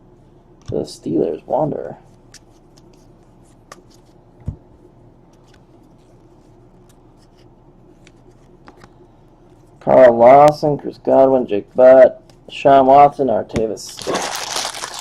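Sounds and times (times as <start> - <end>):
low room hum: 0.0 - 15.0
trading cards rustling: 13.9 - 15.0.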